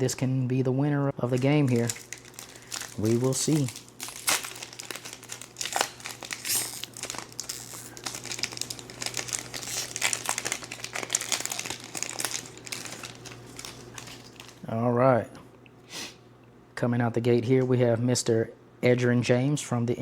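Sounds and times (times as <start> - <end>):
wrapper crinkling and tearing: 1.2 - 14.7.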